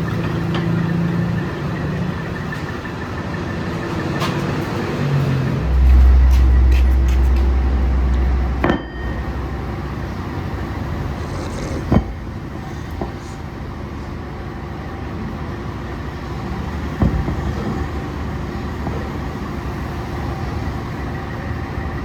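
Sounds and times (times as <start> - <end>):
heavy machinery running: 0.0 - 22.0
deep low hum: 5.5 - 14.0.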